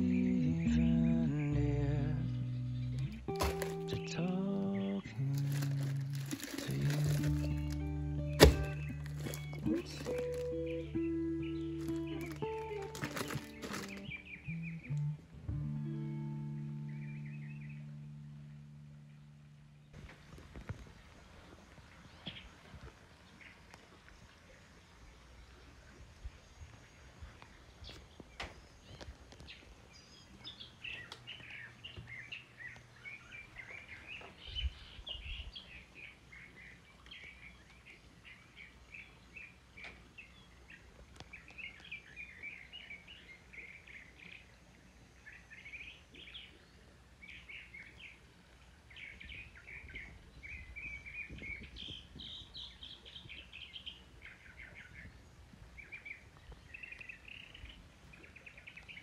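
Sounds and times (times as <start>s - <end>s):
small birds twittering: 0.0s - 15.2s, 19.8s - 59.0s.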